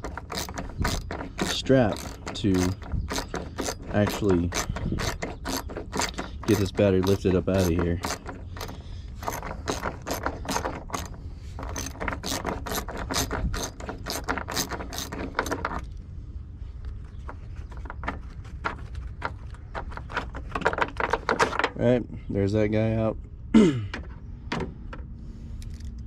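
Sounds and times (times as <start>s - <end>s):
ratchet wrench clicking: 0.0s - 15.9s.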